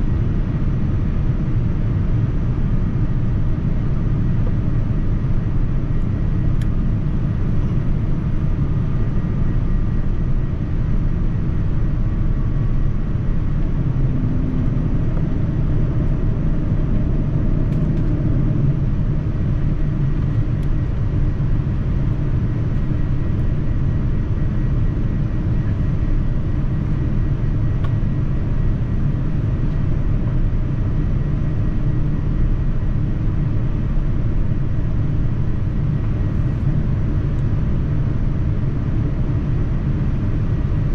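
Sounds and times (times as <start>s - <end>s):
airliner cabin engine drone: 0.0s - 40.9s.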